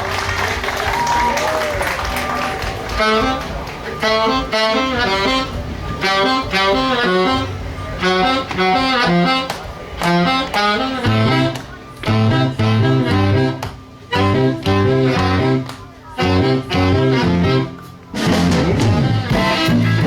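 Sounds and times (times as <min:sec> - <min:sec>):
bass line: 0:00.0 - 0:20.0
live band instrumental: 0:00.0 - 0:20.0.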